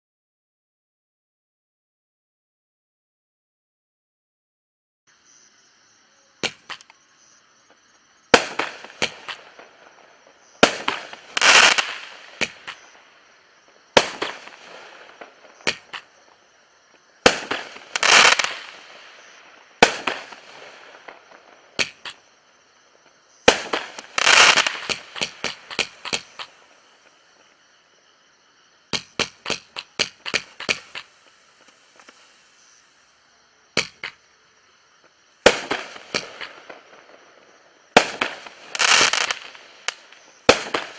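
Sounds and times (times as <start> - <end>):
fireworks bangs: 6.4 - 6.9, 8.3 - 27.5, 28.9 - 32.9, 35.4 - 40.9
fireworks crackling: 8.3 - 27.6, 28.9 - 33.2, 35.2 - 40.9.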